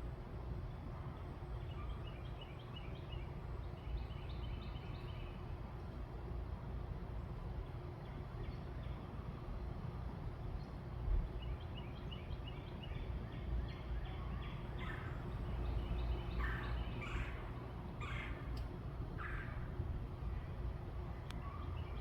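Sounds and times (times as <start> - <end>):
birds chirping and calling: 13.8 - 19.7.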